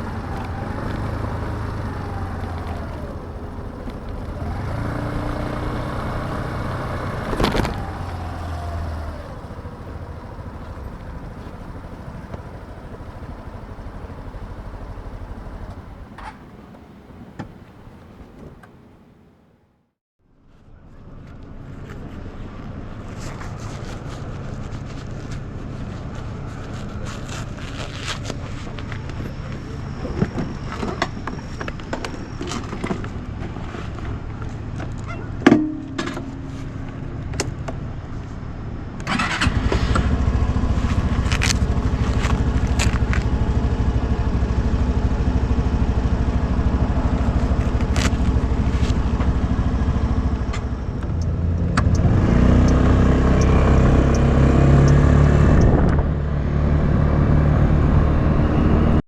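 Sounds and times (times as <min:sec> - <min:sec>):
scooter engine running: 0:00.0 - 0:16.8, 0:39.1 - 0:59.0
sharp clack: 0:35.4 - 0:36.8.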